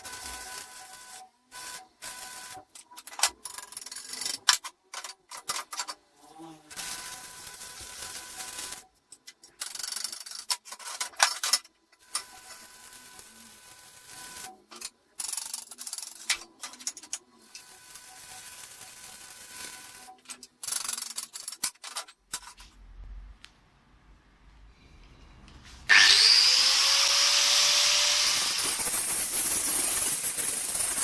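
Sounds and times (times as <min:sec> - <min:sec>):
power tool whining and rasping: 0:25.9 - 0:29.3.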